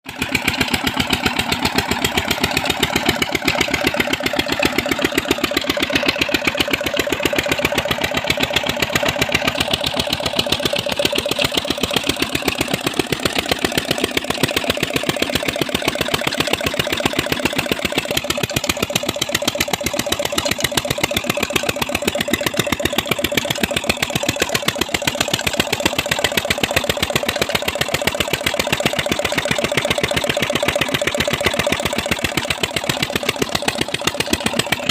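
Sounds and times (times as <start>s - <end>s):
diesel engine running: 0.1s - 34.9s.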